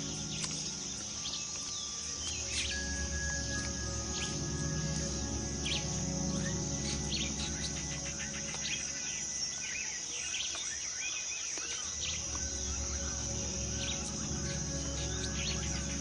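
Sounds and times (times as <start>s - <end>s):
low steady drone: 0.0s - 10.4s, 11.9s - 16.0s
insect chorus: 0.0s - 16.0s.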